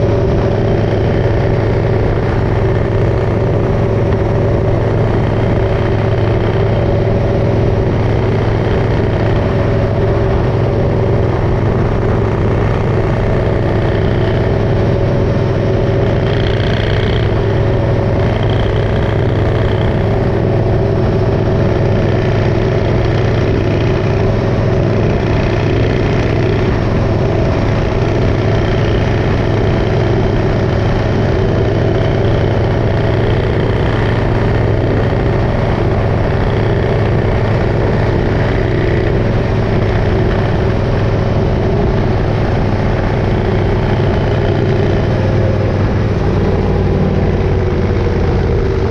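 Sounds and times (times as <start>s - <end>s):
motorcycle engine droning: 0.0s - 48.9s.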